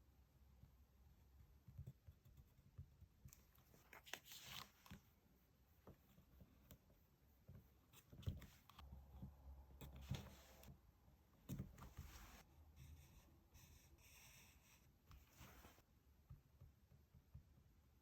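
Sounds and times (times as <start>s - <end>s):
paper rustling: 3.6s - 5.0s.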